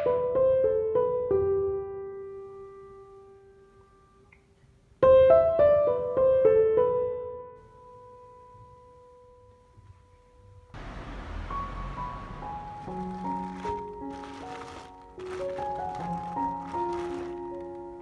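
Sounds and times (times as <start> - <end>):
piano music: 11.3 - 18.0.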